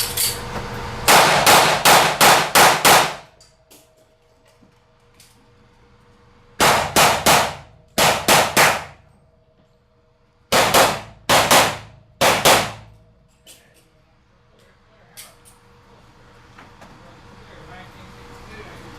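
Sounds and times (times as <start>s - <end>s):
rapid pistol shots: 1.1s - 3.3s, 6.6s - 9.0s, 10.5s - 12.9s.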